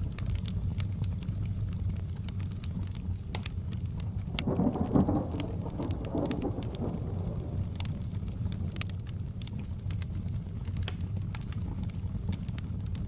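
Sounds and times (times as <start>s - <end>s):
low steady rain: 0.0s - 13.0s
wood fire crackling and popping: 0.0s - 13.0s
thunder rolling: 4.3s - 8.2s.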